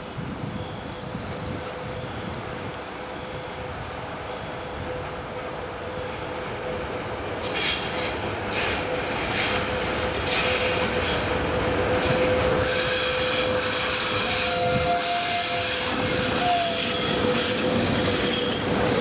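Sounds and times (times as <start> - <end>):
electric locomotive humming: 0.0 - 19.0
train wheels squealing: 7.4 - 19.0.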